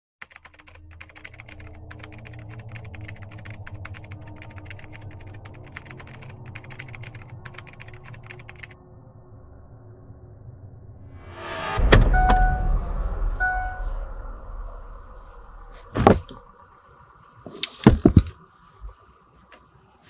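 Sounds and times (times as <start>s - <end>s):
keyboard typing clicks: 0.2s - 8.7s
steady low drone: 0.5s - 17.2s.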